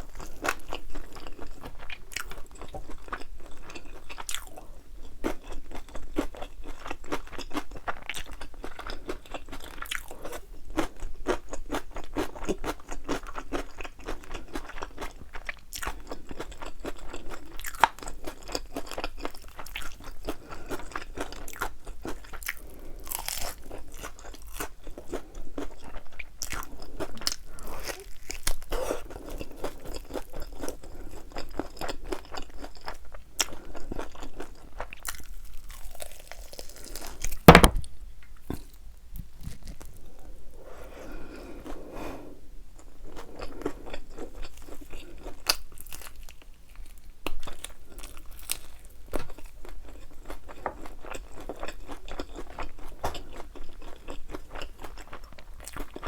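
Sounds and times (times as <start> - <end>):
crunching and chewing: 0.0 - 37.6, 38.3 - 40.3, 42.7 - 56.0.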